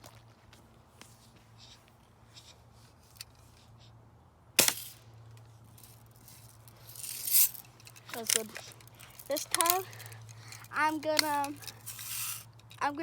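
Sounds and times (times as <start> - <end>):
air rifle shot: 4.6 - 5.0
rustling noise: 5.4 - 10.1, 10.8 - 12.5.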